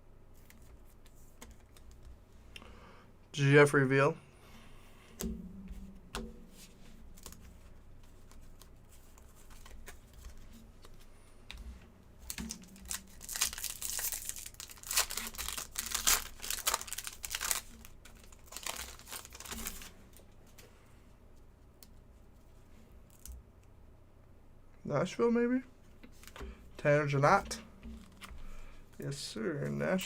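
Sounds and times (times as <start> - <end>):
foil wrapper crinkling and tearing: 12.3 - 19.9.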